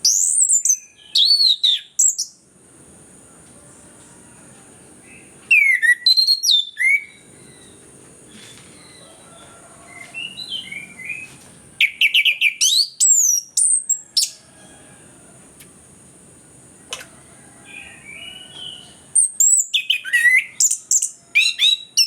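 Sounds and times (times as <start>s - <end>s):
thrush singing whistles: 0.0s - 2.4s, 5.0s - 7.8s, 9.9s - 14.4s, 17.7s - 22.0s
soft bird twittering: 5.0s - 14.4s.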